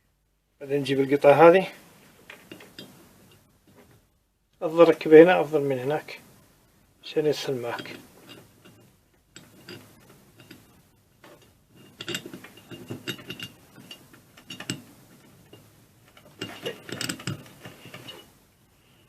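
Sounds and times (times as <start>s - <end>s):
small metal parts clinking: 7.6s - 10.8s, 11.4s - 18.3s.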